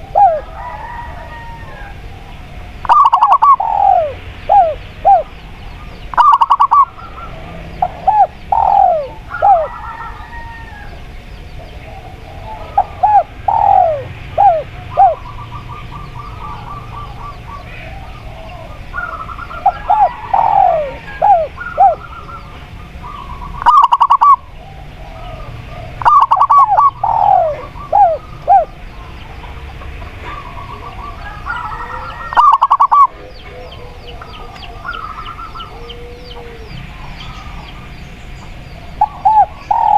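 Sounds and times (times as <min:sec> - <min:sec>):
background birdsong: 0:00.0 - 0:39.9
doves cooing: 0:00.0 - 0:39.9
rapid stuttering bird notes: 0:02.8 - 0:05.4, 0:06.1 - 0:10.1, 0:18.9 - 0:33.1.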